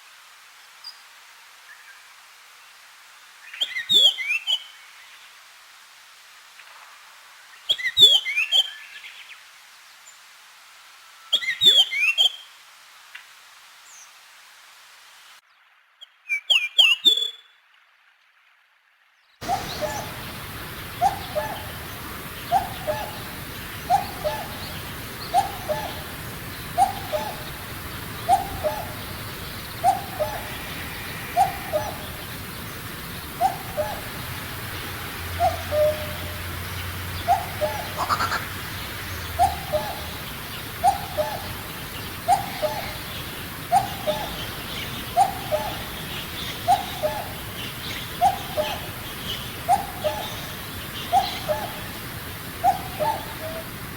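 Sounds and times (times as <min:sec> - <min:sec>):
cuckoo calling: 0:19.4 - 0:53.9
small birds chirping: 0:19.4 - 0:53.9.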